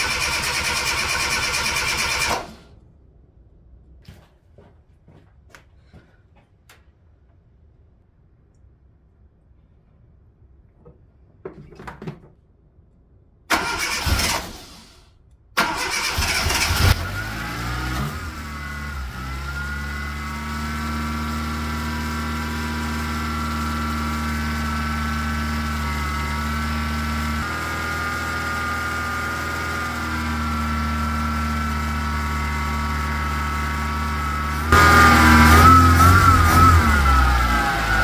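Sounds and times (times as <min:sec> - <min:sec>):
car engine idling: 0:00.0 - 0:02.7, 0:15.6 - 0:38.0
engine cranking: 0:00.0 - 0:02.7, 0:13.5 - 0:15.0, 0:15.6 - 0:17.2.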